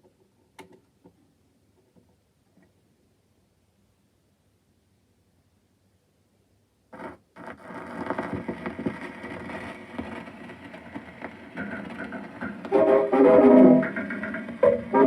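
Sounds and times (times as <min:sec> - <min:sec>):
record surface noise crackling: 0:06.9 - 0:15.0.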